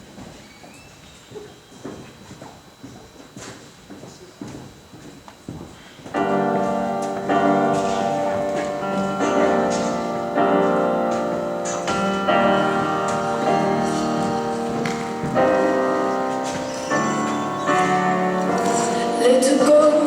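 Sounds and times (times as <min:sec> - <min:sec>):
slow piano chords: 0:06.1 - 0:20.0.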